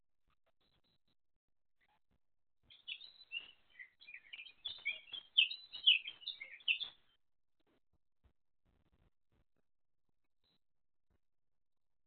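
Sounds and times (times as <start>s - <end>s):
small bird chirping: 2.7s - 7.2s.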